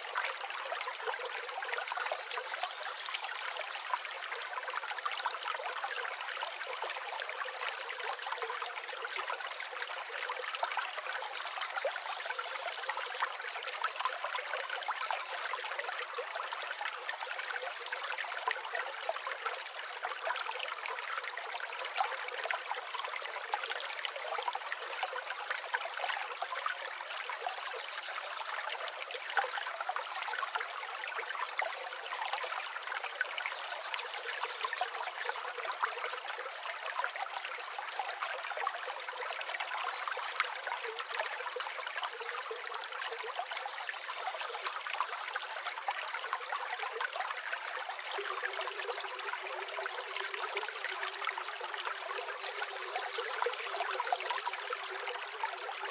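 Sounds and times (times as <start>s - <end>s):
river water flowing over stones: 0.0s - 55.9s.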